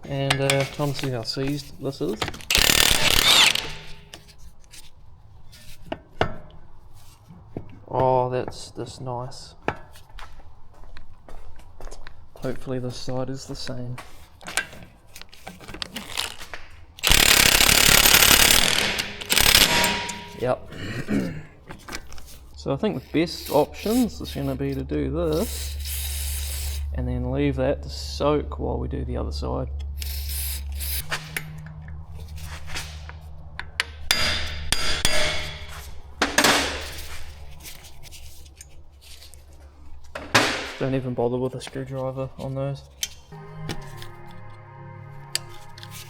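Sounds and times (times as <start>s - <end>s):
impact wrench hammering: 2.5s - 4.1s, 17.0s - 20.8s, 33.8s - 36.9s.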